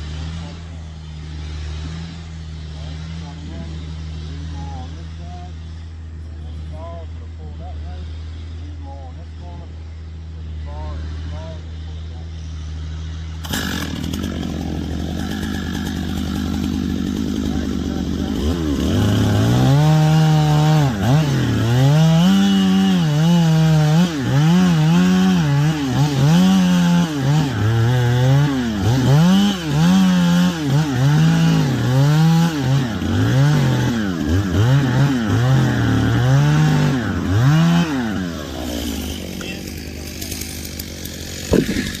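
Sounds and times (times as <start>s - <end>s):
chainsaw cutting wood: 0.0s - 4.9s, 13.4s - 42.0s.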